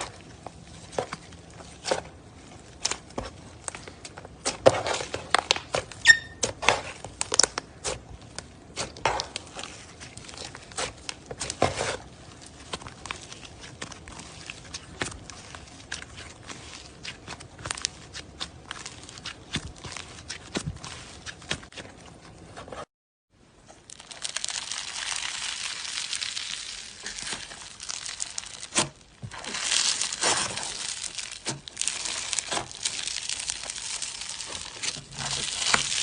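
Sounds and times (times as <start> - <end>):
brief squeak: 6.0 - 6.4.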